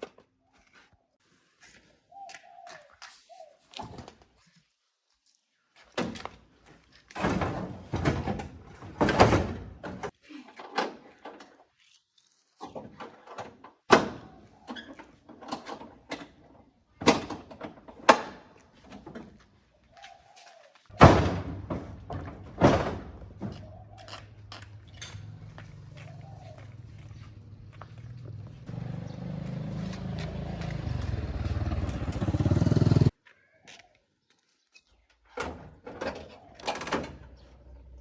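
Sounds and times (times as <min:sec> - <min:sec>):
loud bangs and thuds: 0:21.0 - 0:23.6.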